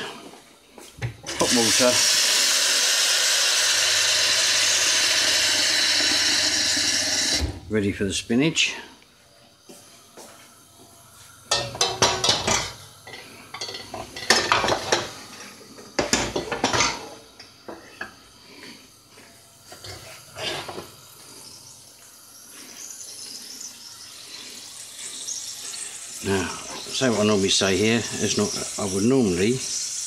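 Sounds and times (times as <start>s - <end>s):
faint hiss: 7.3s - 30.0s
pots and pans clattering: 11.5s - 18.2s, 19.7s - 21.0s.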